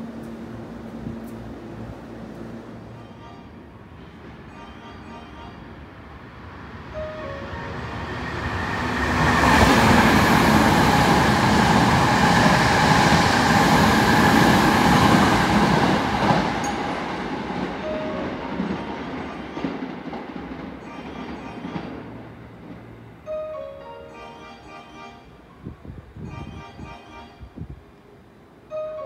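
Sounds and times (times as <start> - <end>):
train ringing whine: 2.6 - 27.8
train wheels rumbling on rails: 6.6 - 23.2.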